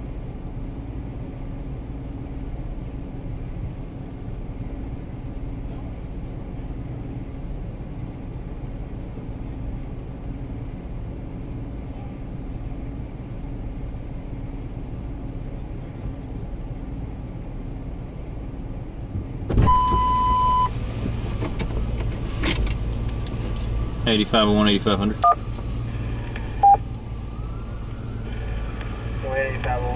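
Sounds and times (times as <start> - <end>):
vehicle engine rumble: 0.0 - 29.9
radio beep: 19.6 - 20.7, 25.2 - 26.8, 28.2 - 29.9
crackling clicks: 21.0 - 23.8, 25.2 - 29.9
two-way radio burst: 28.3 - 29.9.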